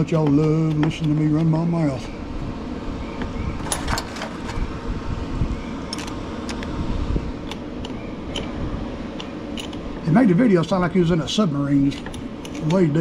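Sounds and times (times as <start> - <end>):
shop fan running: 0.0 - 13.0
hand tools clinking on metal: 3.6 - 4.6.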